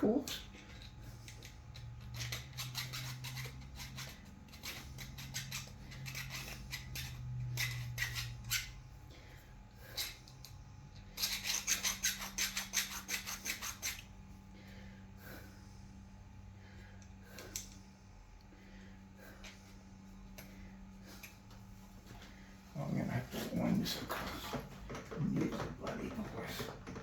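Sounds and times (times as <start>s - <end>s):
low steady hum: 0.0s - 27.0s
hand file scraping: 0.3s - 8.9s, 9.8s - 15.5s.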